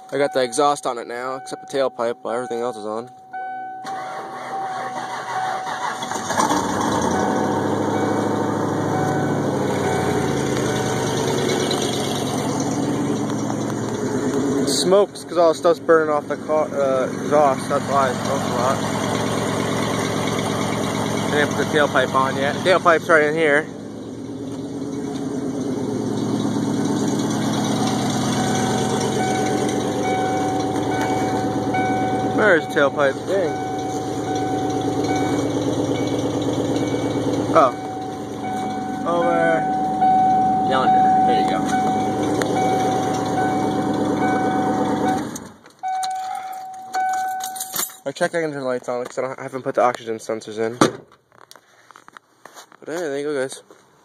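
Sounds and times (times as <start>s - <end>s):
car engine idling: 0.0s - 50.2s
car engine fast idle: 3.8s - 14.4s
engine cranking and starting: 3.8s - 14.6s, 41.7s - 48.0s.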